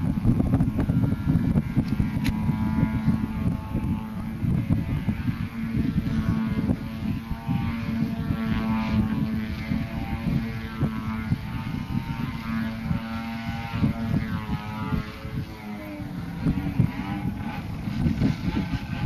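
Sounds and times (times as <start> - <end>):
model airplane engine droning: 0.0 - 19.0
wind buffeting microphone: 0.0 - 19.0.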